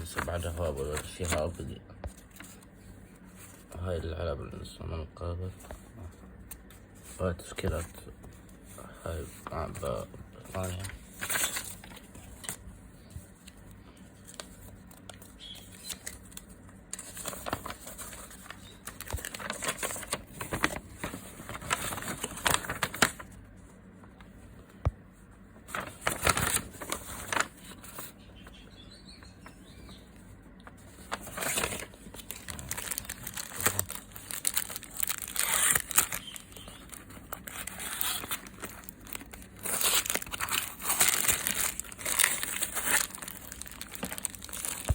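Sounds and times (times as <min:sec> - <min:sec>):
plastic packaging crinkling and tearing: 0:00.0 - 0:02.7, 0:09.1 - 0:12.7, 0:14.2 - 0:23.4, 0:25.7 - 0:28.1, 0:30.8 - 0:44.9.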